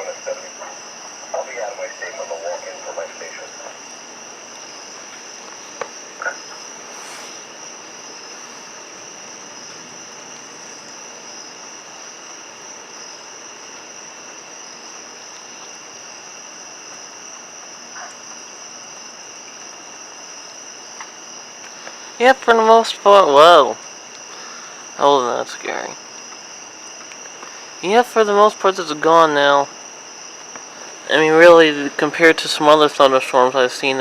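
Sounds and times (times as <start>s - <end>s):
soft hiss: 0.0s - 22.4s
insects chirring: 0.0s - 34.0s.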